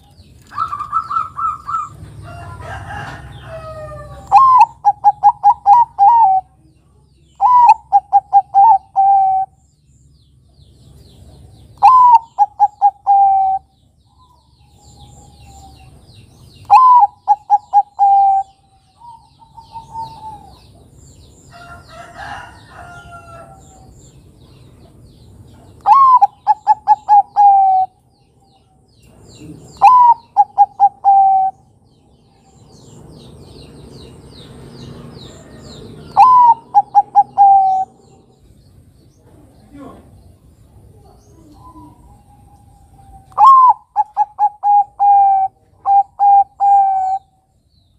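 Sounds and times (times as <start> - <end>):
lower bird call: 0.0 - 6.5, 7.3 - 9.7, 11.8 - 21.7, 25.8 - 38.6, 41.2 - 47.9
faint birds chirping: 0.0 - 47.9
dove cooing: 0.5 - 6.6, 7.4 - 9.6, 11.8 - 16.0, 16.6 - 20.9, 25.8 - 28.0, 29.4 - 31.7, 35.3 - 38.3, 41.0 - 47.4.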